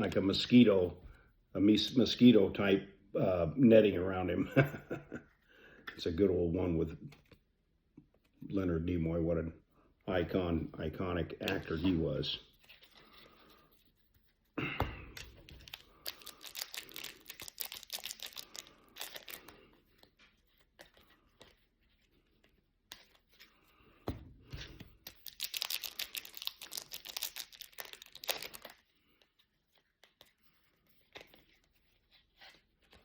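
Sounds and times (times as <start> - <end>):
cards clicking as shuffled: 15.1 - 21.6, 22.5 - 23.5, 24.5 - 28.8
foil wrappers crinkling and tearing: 15.3 - 19.7, 24.9 - 28.9.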